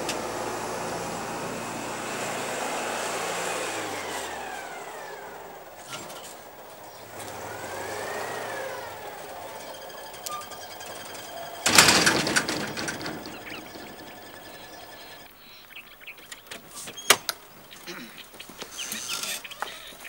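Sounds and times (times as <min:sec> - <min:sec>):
small car engine running: 0:00.0 - 0:15.3
mechanical whine: 0:00.4 - 0:15.3.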